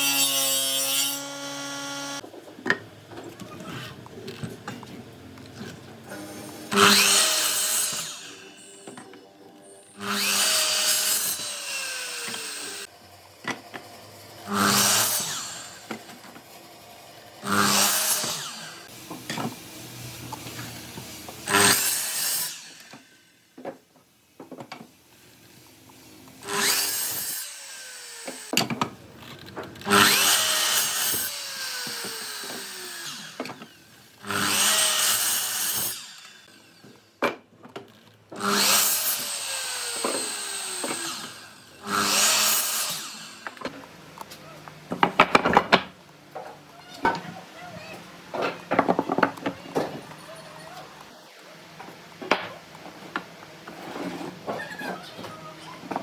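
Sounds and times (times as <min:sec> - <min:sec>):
power saw cutting wood: 0:00.0 - 0:02.2, 0:05.6 - 0:23.2, 0:26.0 - 0:28.7, 0:29.8 - 0:37.1, 0:38.3 - 0:43.8.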